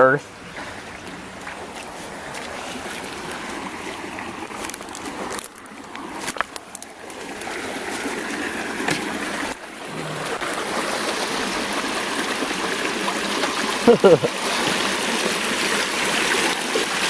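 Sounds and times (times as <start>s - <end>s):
creek water over rocks: 0.0s - 17.0s.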